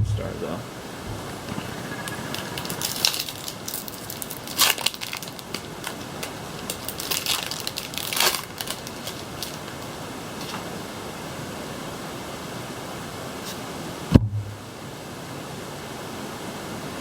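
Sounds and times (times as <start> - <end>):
background hiss: 0.0 - 17.0
foil wrapper crinkling: 2.1 - 10.8.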